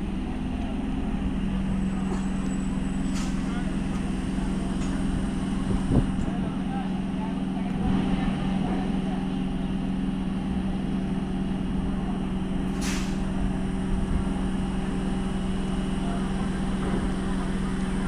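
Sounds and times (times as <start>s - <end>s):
train electrical hum: 0.0s - 18.0s
train rumble: 0.0s - 18.0s
brief hiss: 12.7s - 13.3s.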